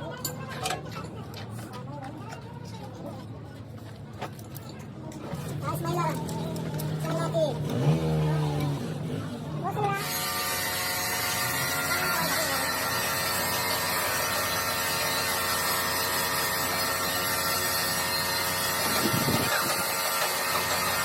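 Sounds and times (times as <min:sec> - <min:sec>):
grinding sound: 0:05.2 - 0:21.0
workshop machinery motor hum: 0:05.3 - 0:21.0.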